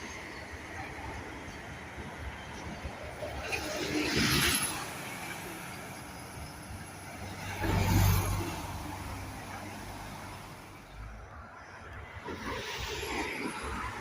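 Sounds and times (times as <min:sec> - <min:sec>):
outdoor noise: 0:00.0 - 0:14.0
vehicle passing: 0:07.2 - 0:11.2.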